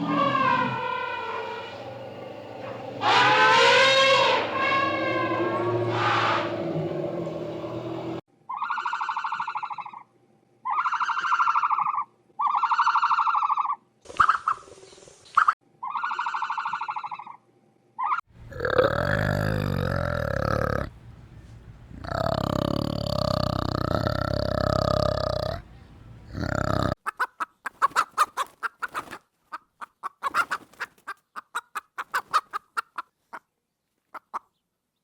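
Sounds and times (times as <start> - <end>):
drawn-out farm animal calls: 0.0 - 2.0, 2.7 - 7.8, 18.4 - 27.2
louder animal call: 0.0 - 7.4, 18.4 - 27.0.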